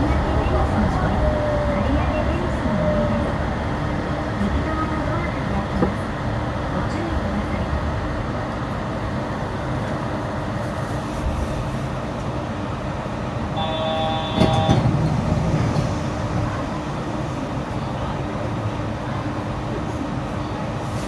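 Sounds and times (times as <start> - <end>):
automated train running: 0.0 - 21.0
short electronic tone: 13.6 - 14.8.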